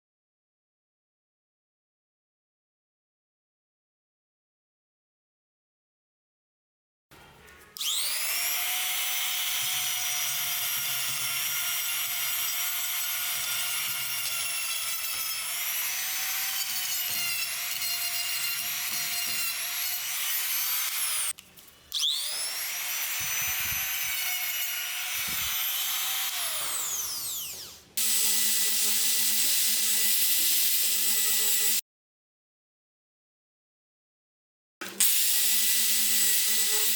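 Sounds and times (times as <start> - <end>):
power tool motor whine: 7.8 - 21.3, 22.0 - 31.8.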